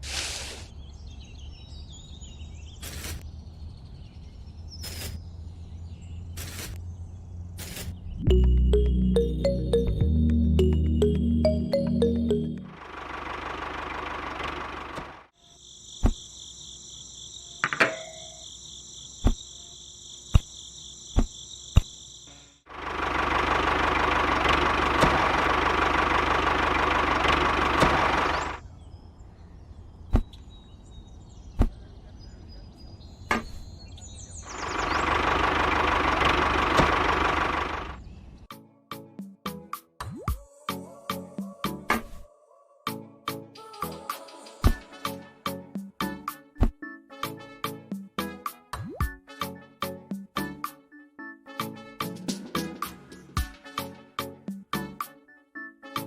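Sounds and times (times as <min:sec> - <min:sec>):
mechanical running noise: 0:12.7 - 0:15.3, 0:22.7 - 0:28.6.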